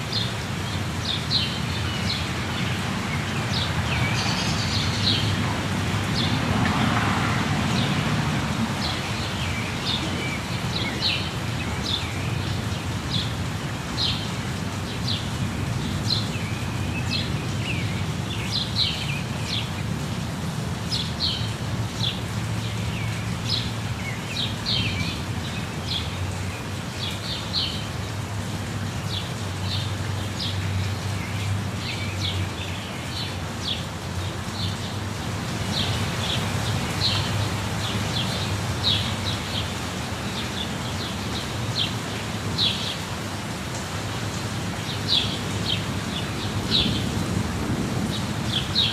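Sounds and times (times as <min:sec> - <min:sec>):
birds chirping: 0:00.0 - 0:20.0, 0:29.1 - 0:47.3
waterfall rushing: 0:00.0 - 0:48.9.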